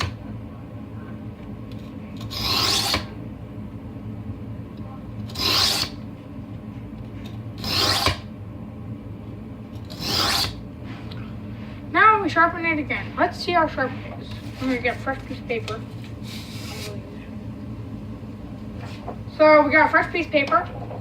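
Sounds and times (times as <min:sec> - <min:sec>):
knife scraping on whetstone: 0:02.3 - 0:03.1, 0:05.3 - 0:06.0, 0:07.6 - 0:08.2, 0:09.9 - 0:10.6.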